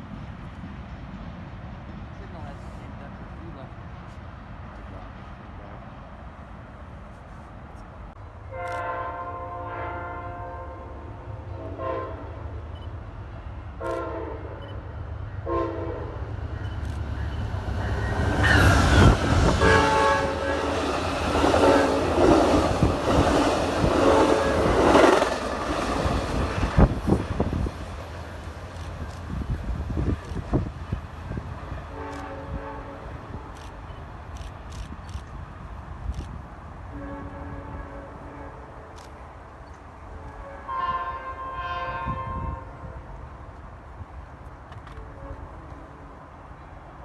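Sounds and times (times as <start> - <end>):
train wheel and rail noise: 0.0 - 47.0
locomotive horn blasts: 8.5 - 12.4, 13.8 - 14.6, 15.4 - 16.2, 18.5 - 20.9, 23.9 - 25.1, 31.9 - 33.6, 36.9 - 38.9, 40.2 - 43.1, 45.0 - 45.9.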